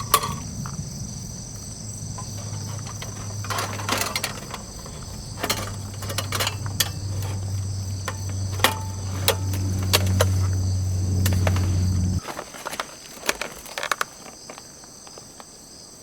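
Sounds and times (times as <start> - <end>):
low steady hum: 0.0 - 12.2
crickets chirping: 0.0 - 16.0.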